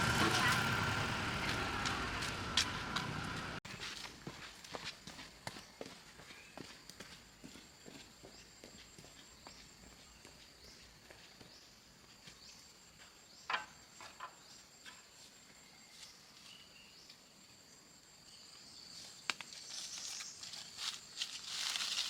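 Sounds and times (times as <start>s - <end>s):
rustling crackling noise: 19.6s - 22.0s.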